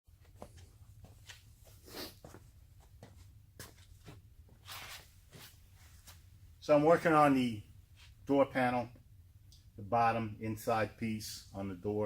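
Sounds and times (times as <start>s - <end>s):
soft rustles: 0.2s - 6.3s
low steady hum: 0.2s - 12.0s.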